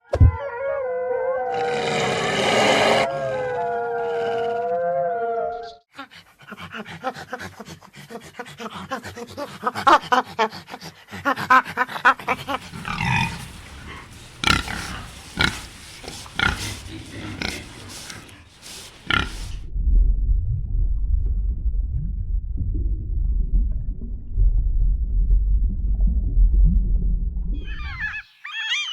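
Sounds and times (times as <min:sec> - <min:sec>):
animal call sliding in pitch: 0:01.2 - 0:05.8, 0:12.2 - 0:19.6, 0:27.6 - 0:28.9
rapid rough pulsed animal calls: 0:12.1 - 0:19.6, 0:27.6 - 0:28.9
low rumble: 0:12.3 - 0:27.6.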